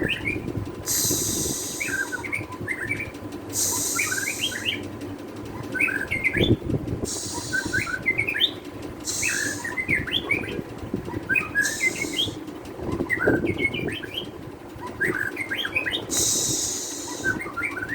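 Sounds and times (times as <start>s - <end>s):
harsh hissing burst: 0.8s - 2.1s, 3.5s - 4.4s, 16.1s - 17.4s
bird song chirping phrases: 1.7s - 4.9s, 5.6s - 6.6s, 7.2s - 12.4s, 13.0s - 17.9s.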